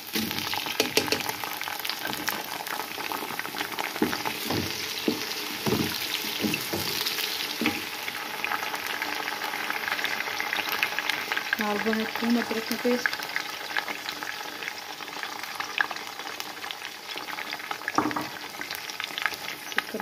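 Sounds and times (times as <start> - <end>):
vegetables sizzling in oil: 0.0 - 20.0
spatula knocking and scraping pan: 0.1 - 2.4, 3.6 - 8.0.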